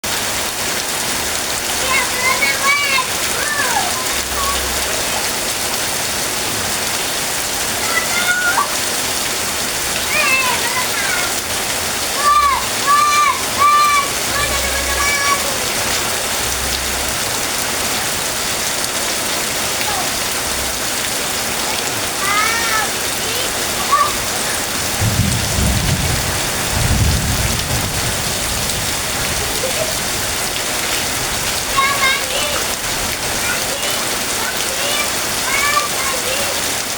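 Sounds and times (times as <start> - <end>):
heavy rain falling: 0.0 - 36.9
low rumbles: 23.5 - 31.8.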